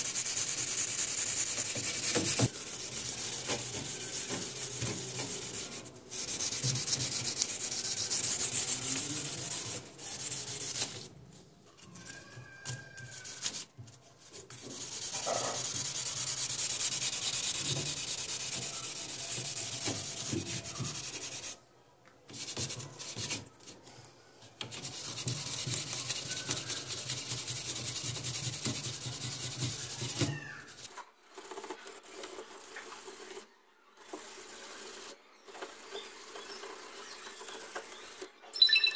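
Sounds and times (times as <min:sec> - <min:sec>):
sanding scratchy rubbing: 0:00.0 - 0:11.1, 0:14.6 - 0:21.6, 0:24.7 - 0:33.4, 0:34.0 - 0:38.3.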